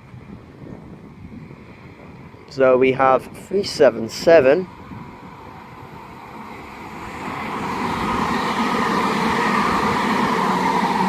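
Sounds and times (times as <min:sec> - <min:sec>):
electric train passing: 0:00.0 - 0:11.0.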